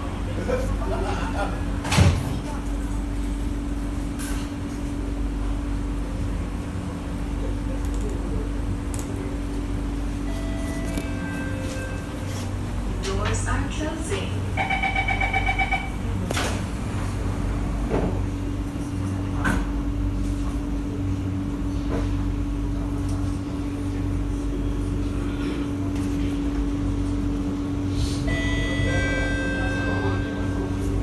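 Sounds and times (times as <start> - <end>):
train carriage humming: 0.0 - 31.0
train doors shutting: 1.8 - 5.0, 10.0 - 19.8.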